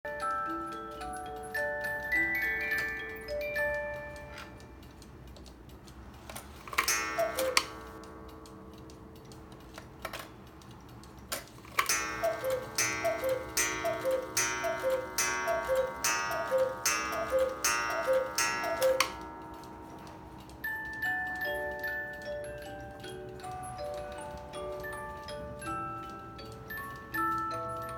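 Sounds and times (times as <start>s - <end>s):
cuckoo clock calls: 0.1s - 5.2s, 6.7s - 8.5s, 11.7s - 27.9s
music box tune: 0.1s - 11.2s, 11.8s - 27.9s
clicks: 2.1s - 27.9s
pendulum ticking: 6.8s - 27.9s.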